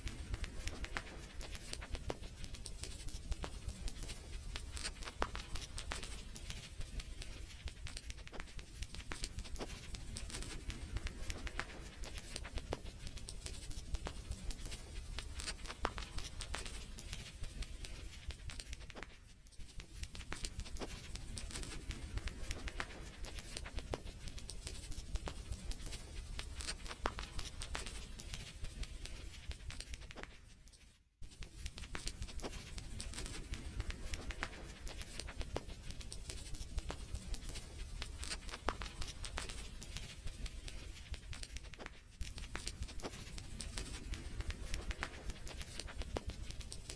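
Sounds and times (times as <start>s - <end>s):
wood fire crackling: 0.0s - 19.2s.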